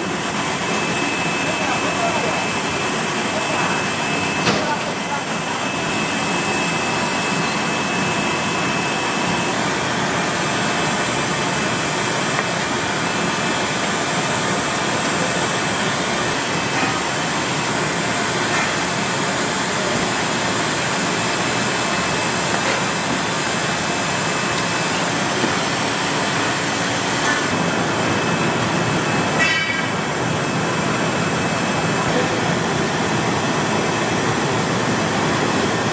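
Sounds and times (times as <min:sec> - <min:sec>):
factory machinery running: 0:00.0 - 0:35.9.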